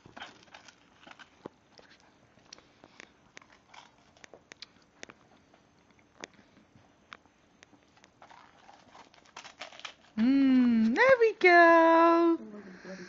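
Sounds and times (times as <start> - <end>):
dogs crunching ice cream cones: 0.0 - 6.3, 7.6 - 10.2.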